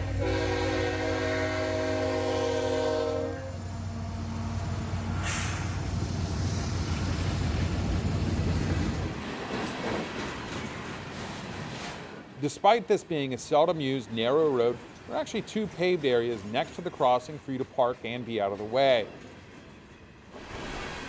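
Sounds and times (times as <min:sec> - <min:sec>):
locomotive air horn: 0:00.0 - 0:05.7
locomotive engine rumbling: 0:00.0 - 0:09.2
rail noise: 0:00.0 - 0:21.0.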